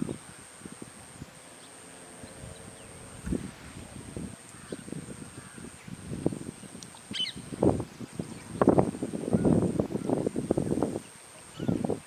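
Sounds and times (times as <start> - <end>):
faint bird chirps: 6.6 - 7.5.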